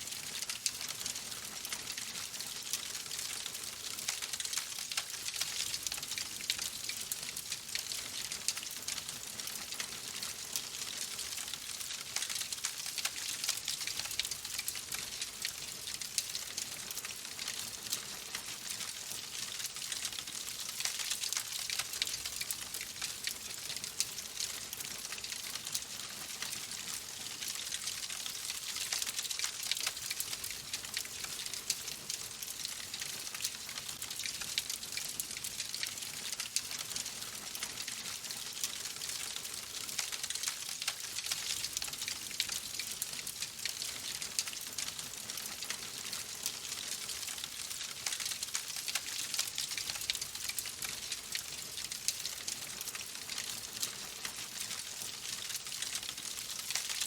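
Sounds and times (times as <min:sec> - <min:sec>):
wood fire crackling: 0:02.4 - 0:06.0.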